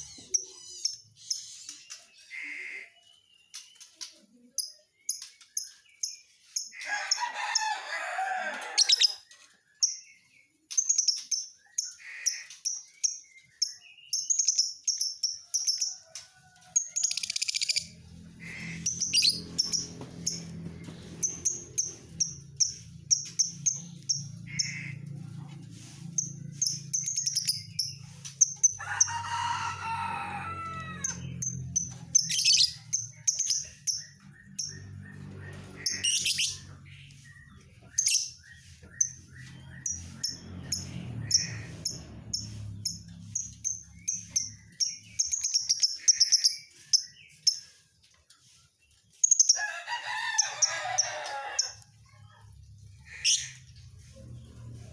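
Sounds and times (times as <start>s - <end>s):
bird chirping: 0.0s - 6.5s, 8.9s - 16.0s, 17.0s - 25.1s, 31.1s - 47.8s.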